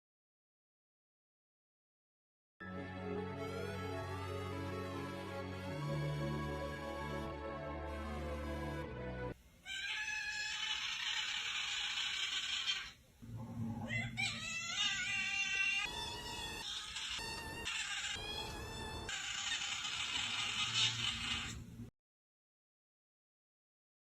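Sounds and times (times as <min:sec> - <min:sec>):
cat yowling: 0:09.6 - 0:11.6, 0:13.8 - 0:19.5.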